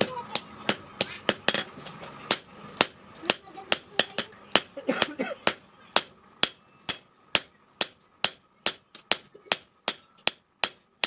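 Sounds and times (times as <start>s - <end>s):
hammer striking steel on anvil: 2.3s - 10.8s.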